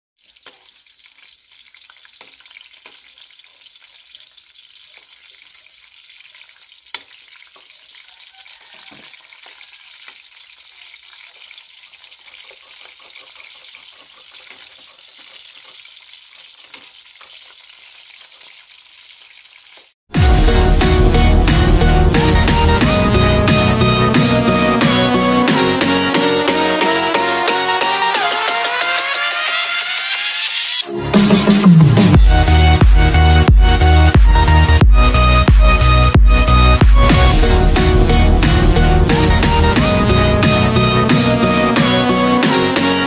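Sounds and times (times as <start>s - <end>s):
food sizzling in hot oil: 0.2s - 20.0s
loud electronic music: 20.1s - 43.0s.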